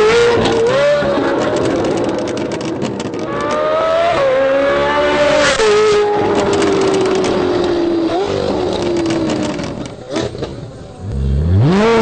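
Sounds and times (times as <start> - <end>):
sports car engine accelerating: 11.0 - 12.0.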